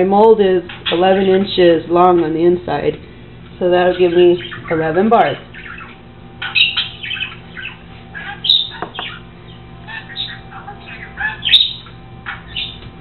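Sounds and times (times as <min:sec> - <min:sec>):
bird chirping and squawking: 0:00.5 - 0:02.3, 0:03.8 - 0:13.0.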